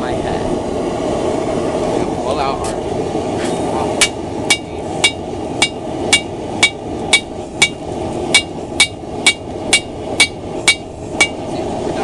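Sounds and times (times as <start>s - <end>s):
hammer striking steel on anvil: 4.0s - 11.4s.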